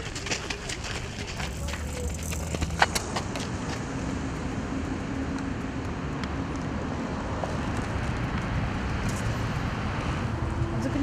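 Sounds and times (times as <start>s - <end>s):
engine hum: 0.0s - 11.0s
street traffic noise: 0.0s - 11.0s.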